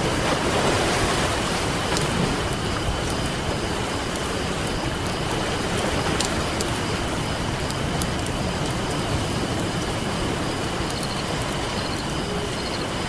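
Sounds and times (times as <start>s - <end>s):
campfire crackling: 0.0s - 13.0s
ocean surf rushing: 0.0s - 13.0s.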